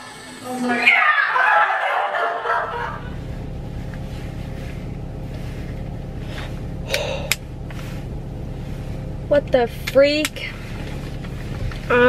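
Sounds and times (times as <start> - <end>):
car engine idling: 0.0 - 12.0
people shouting and laughing: 0.6 - 3.1.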